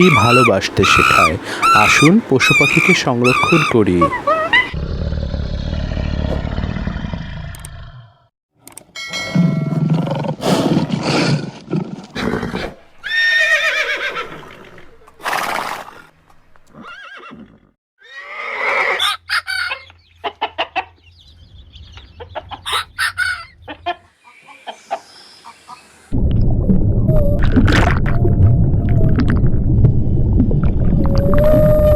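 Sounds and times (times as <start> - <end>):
chickens clucking: 0.2 - 4.8, 19.0 - 25.9.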